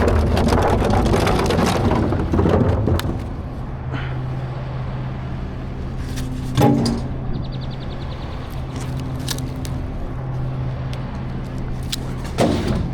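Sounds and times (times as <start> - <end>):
refuse cracking and clattering: 0.0 - 3.9, 8.1 - 12.9
garbage truck engine running: 0.0 - 12.9.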